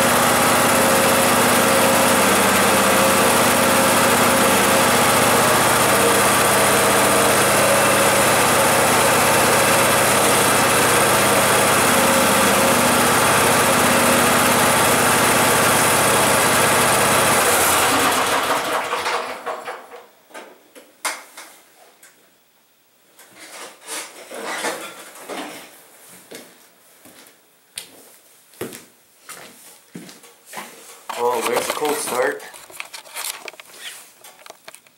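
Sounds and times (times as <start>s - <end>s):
garden tractor engine running: 0.0s - 19.8s, 31.1s - 33.3s.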